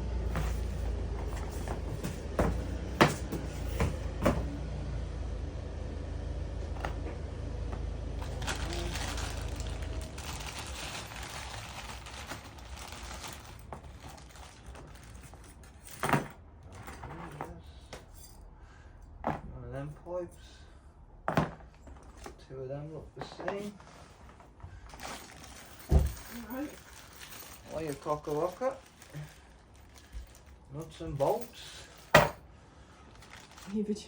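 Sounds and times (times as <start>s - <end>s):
low rumble: 5.0s - 13.5s
packaging rustling: 8.2s - 15.7s, 23.6s - 32.3s, 33.0s - 34.0s.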